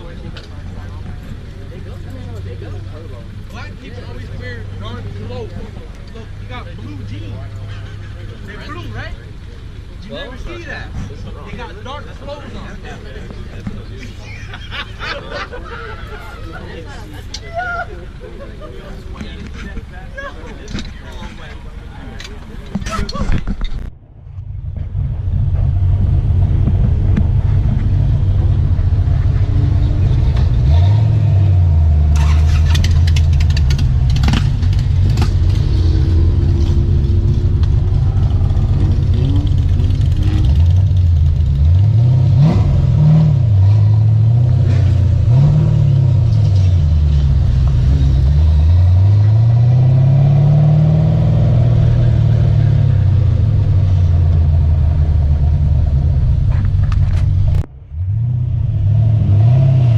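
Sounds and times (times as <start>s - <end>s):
exhaust crackles: 18.9s - 59.9s
car engine accelerating: 23.7s - 59.9s.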